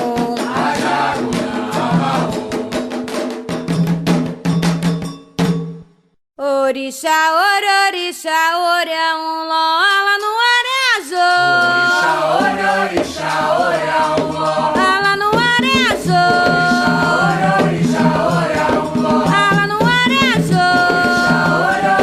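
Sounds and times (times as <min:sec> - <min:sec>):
voices singing long held notes: 0:00.0 - 0:02.7, 0:11.2 - 0:22.0
hand percussion: 0:00.0 - 0:06.0, 0:11.4 - 0:22.0.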